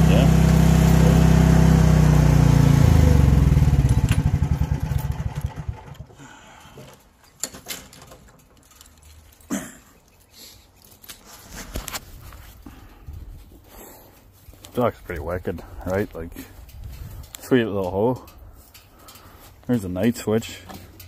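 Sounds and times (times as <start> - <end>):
excavator engine running: 0.0 - 6.2.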